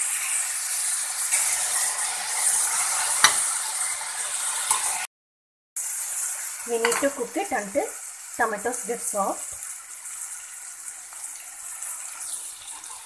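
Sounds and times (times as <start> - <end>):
onions and tomatoes sizzling in oil: 0.0 - 5.1, 5.8 - 13.0
steel spoon scraping and clinking pan: 3.2 - 3.5.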